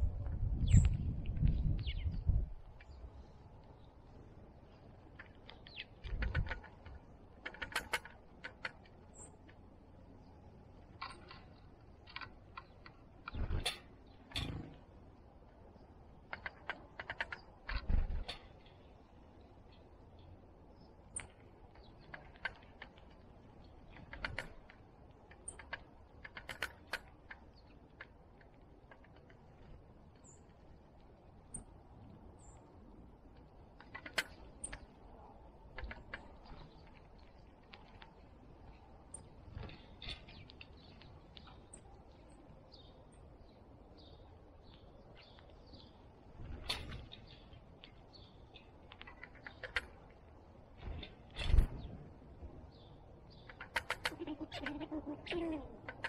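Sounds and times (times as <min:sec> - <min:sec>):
small birds chirping: 0:00.0 - 0:56.0
small clicks: 0:21.1 - 0:32.2, 0:35.7 - 0:42.2, 0:46.5 - 0:51.8.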